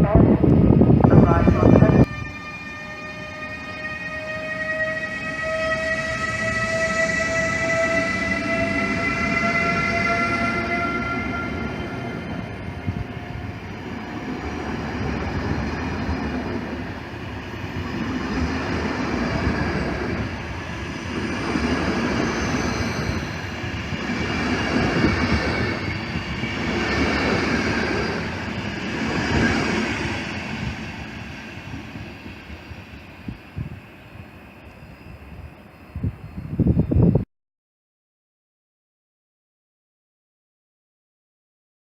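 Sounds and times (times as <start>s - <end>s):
train horn: 1.2s - 11.7s.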